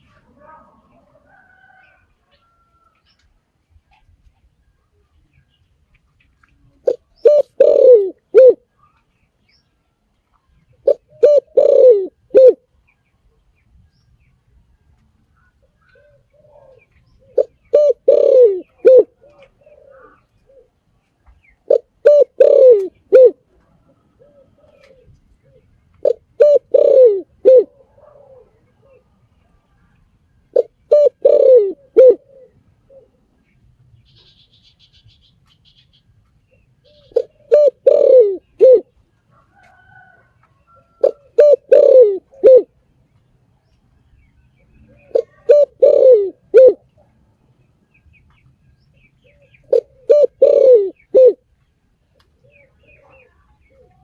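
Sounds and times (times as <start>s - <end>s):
dove cooing: 6.8s - 9.0s, 10.8s - 12.7s, 15.5s - 20.8s, 21.6s - 29.2s, 30.5s - 33.4s, 36.8s - 42.8s, 44.8s - 47.1s, 49.2s - 51.4s, 52.4s - 54.0s.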